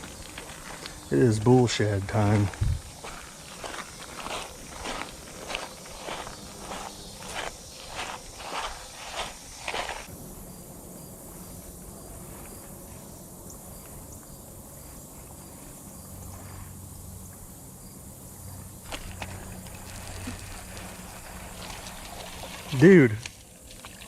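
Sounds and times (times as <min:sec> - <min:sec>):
footsteps: 0:00.0 - 0:10.1
insect chirping: 0:00.0 - 0:24.0.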